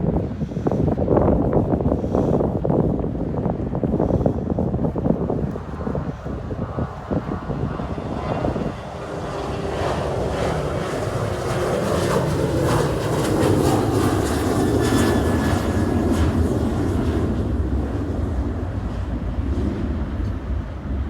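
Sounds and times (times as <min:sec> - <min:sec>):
jet engines roaring: 0:03.0 - 0:21.0.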